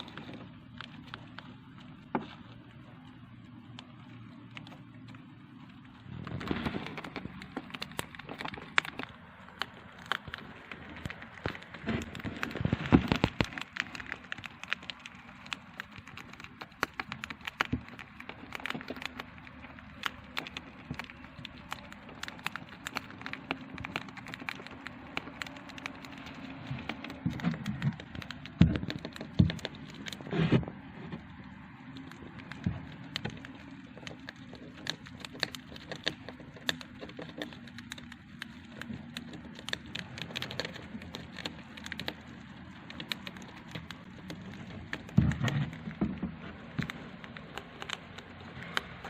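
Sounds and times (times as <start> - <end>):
hamster crunching seeds: 0.0 - 49.0.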